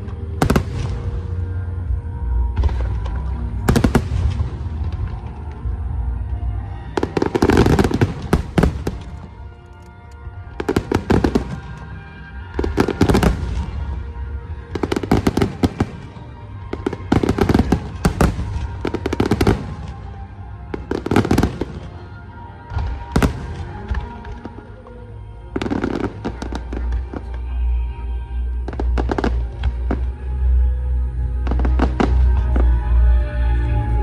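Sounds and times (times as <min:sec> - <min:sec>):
music playing: 0:00.0 - 0:34.0
fireworks bursting: 0:02.4 - 0:05.8, 0:07.0 - 0:09.4, 0:10.5 - 0:27.6, 0:28.6 - 0:30.2, 0:31.4 - 0:32.9.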